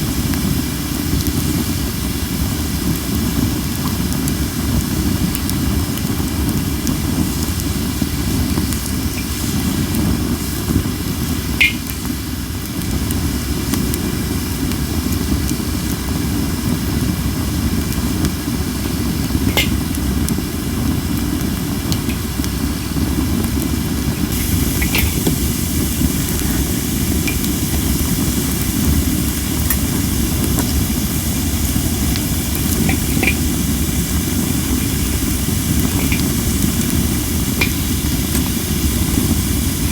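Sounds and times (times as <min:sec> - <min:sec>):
fire crackling pops: 0:00.0 - 0:39.9
fire hissing: 0:00.0 - 0:39.9
wind rumbling: 0:24.2 - 0:39.9.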